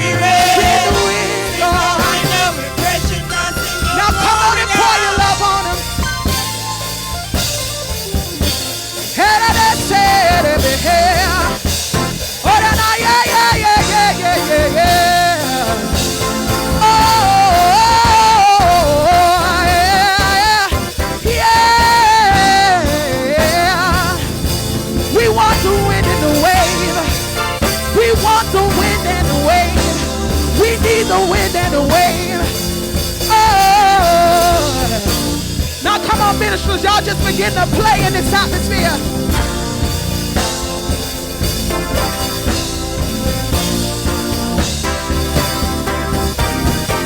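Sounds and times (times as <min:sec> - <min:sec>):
person singing with vibrato: 0:00.0 - 0:06.9, 0:08.9 - 0:42.4
drum kit beat: 0:00.0 - 0:47.0
gospel band playing: 0:00.0 - 0:47.0.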